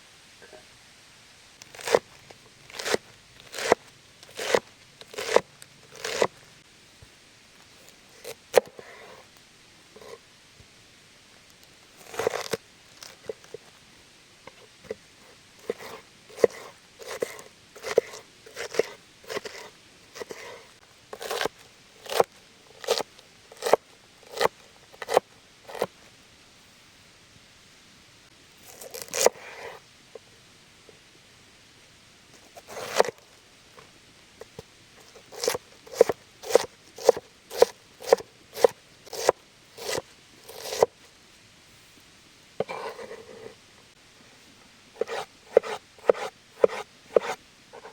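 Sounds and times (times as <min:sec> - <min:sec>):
knife cutting on a board: 0:01.7 - 0:02.0, 0:02.7 - 0:06.3, 0:15.6 - 0:20.6, 0:21.2 - 0:23.0, 0:23.6 - 0:25.9, 0:32.6 - 0:33.2, 0:35.1 - 0:40.9, 0:42.6 - 0:43.6, 0:45.0 - 0:47.9.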